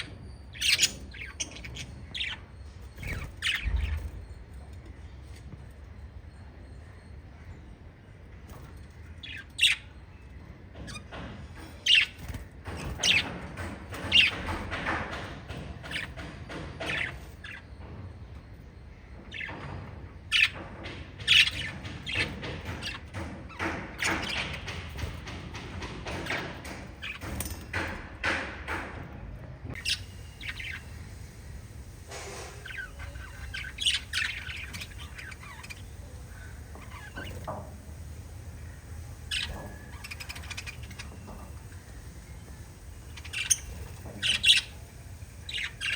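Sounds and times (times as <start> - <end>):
steady low hum: 29.6 - 45.9
budgerigars chirping: 29.8 - 45.9.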